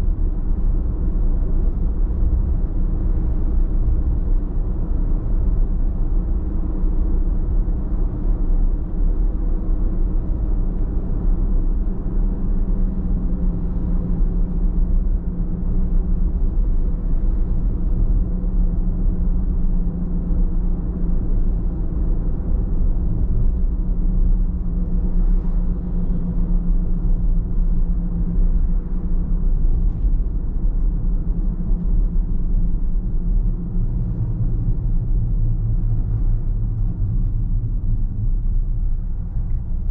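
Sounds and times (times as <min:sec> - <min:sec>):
car road and engine rumble: 0:00.0 - 0:39.9
faint steady hum: 0:00.0 - 0:39.9.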